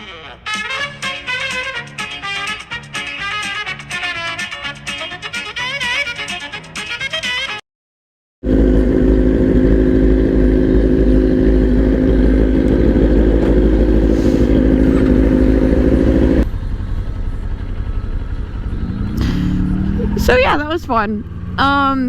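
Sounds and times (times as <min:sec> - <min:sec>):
motorcycle engine running: 0:08.4 - 0:22.0.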